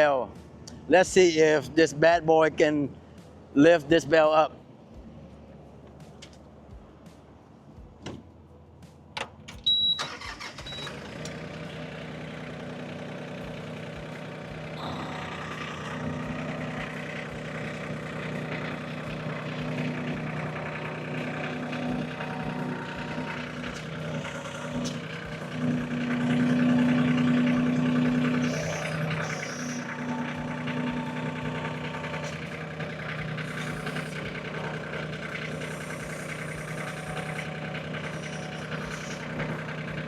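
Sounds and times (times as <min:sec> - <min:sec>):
tractor diesel engine running: 0:00.0 - 0:40.0
loader hydraulic hum: 0:09.2 - 0:40.0.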